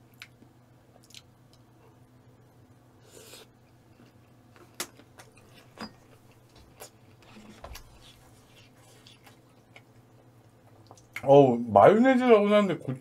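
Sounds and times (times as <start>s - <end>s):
low steady hum: 0.0s - 13.0s
mouth clicks and smacks chewing: 1.0s - 1.6s.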